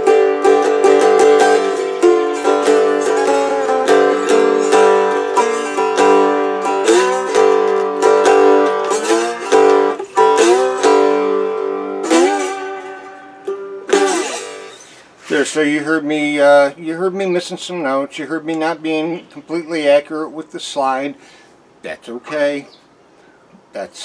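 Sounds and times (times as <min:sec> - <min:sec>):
slide guitar plucked notes: 0:00.0 - 0:16.0.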